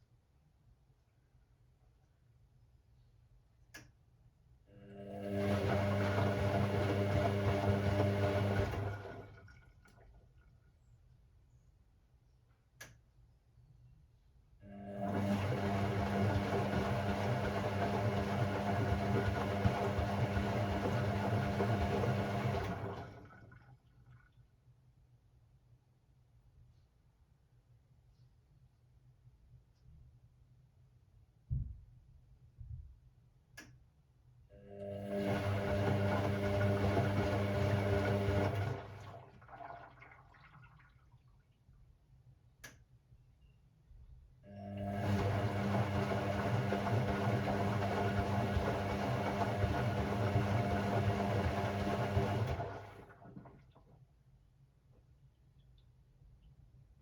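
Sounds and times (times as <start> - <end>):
washing machine motor hum: 4.7 - 10.1, 14.6 - 24.3, 34.6 - 41.0, 44.5 - 54.0
water sloshing and dripping: 8.0 - 10.8, 19.1 - 24.6, 38.1 - 41.9, 51.1 - 54.1
water swishing: 38.5 - 41.4.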